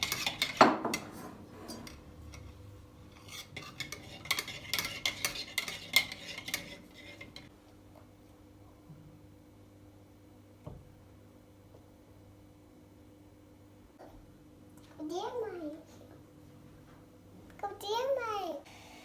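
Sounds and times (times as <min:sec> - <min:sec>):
spoon stirring and clinking in dish: 0:00.0 - 0:07.5.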